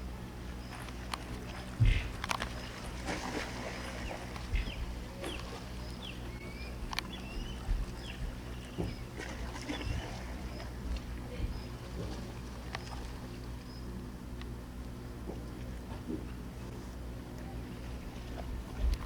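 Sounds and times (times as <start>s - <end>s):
gulls calling: 0.2s - 14.0s.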